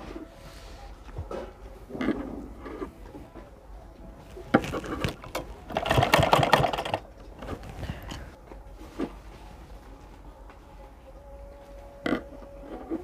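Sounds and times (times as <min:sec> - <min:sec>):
sewing machine stitching: 0:04.6 - 0:07.0
sewing machine mechanism clicks: 0:05.1 - 0:07.0.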